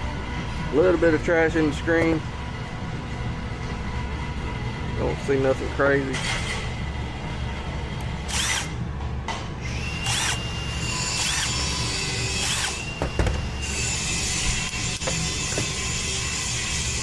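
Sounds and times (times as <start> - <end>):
low shop hum: 0.0 - 17.0
power screwdriver motor spinning: 8.3 - 8.8, 9.6 - 12.9.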